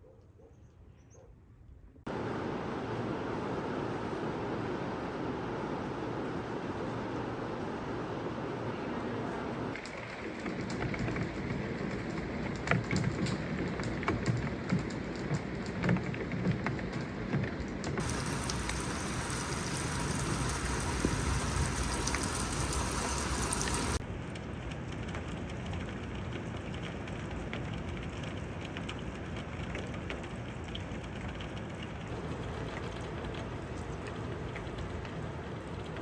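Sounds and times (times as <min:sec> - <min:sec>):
rain pattering: 0:09.7 - 0:36.0.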